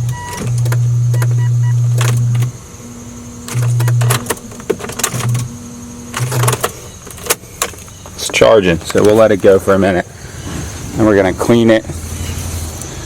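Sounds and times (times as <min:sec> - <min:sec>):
power window motor running: 0:00.0 - 0:09.4.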